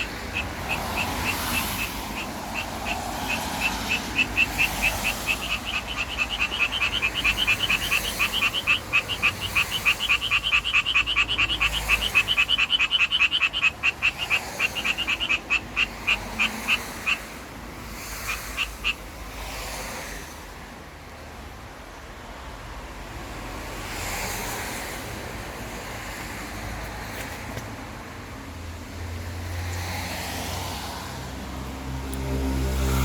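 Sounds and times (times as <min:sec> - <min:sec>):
tree frog croaking: 0:00.0 - 0:19.2.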